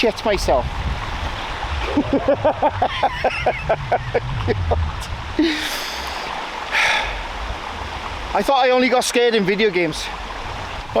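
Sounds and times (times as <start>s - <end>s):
steady background rush: 0.7s - 6.5s
man laughing: 1.8s - 6.2s.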